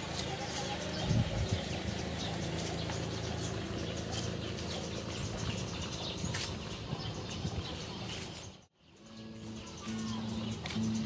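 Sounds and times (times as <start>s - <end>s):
car engine rumble: 0.0s - 8.8s
birds chirping: 0.0s - 11.0s.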